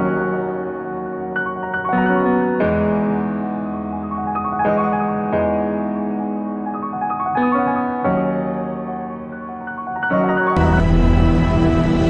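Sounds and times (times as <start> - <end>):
band playing: 10.6 - 12.0.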